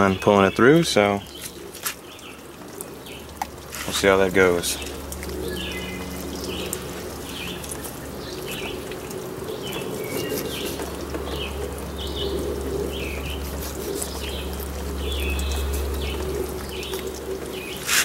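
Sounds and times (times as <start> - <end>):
steady low hum: 0.0 - 18.0
bird chirping: 4.7 - 18.0.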